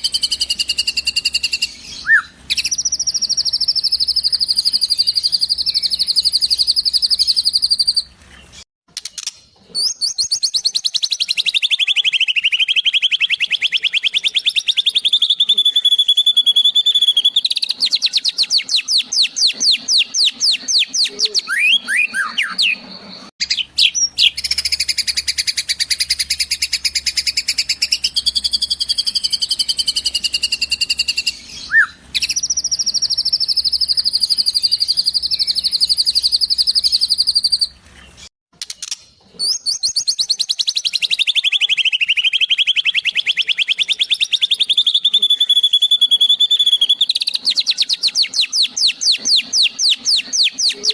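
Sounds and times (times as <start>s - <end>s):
songbird trilling: 9.2s - 22.8s, 38.8s - 50.9s.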